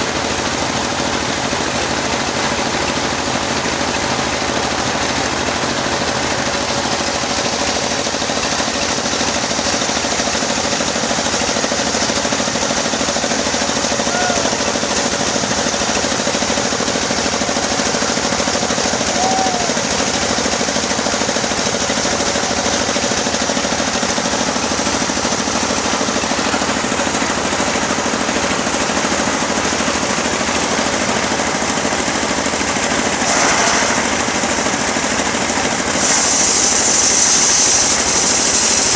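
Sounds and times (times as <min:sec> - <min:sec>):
sawmill sawing a log: 0:00.0 - 0:38.9.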